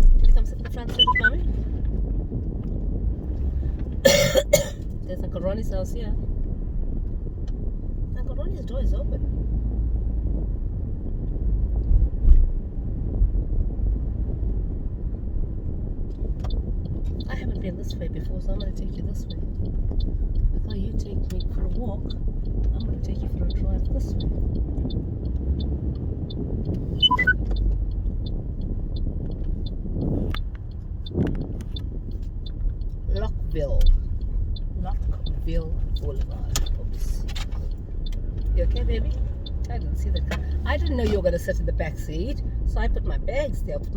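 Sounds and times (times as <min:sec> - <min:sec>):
light even ticking: 0:00.0 - 0:04.0, 0:15.7 - 0:43.9
road and engine rumble: 0:00.0 - 0:43.9
wind buffeting microphone: 0:00.0 - 0:43.9.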